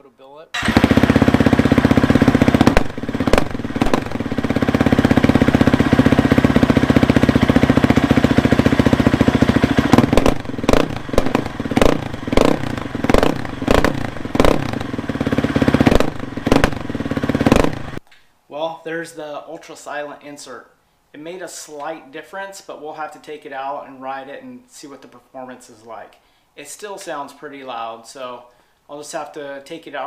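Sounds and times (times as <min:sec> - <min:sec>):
dirt bike engine idling and revving: 0:00.6 - 0:18.0.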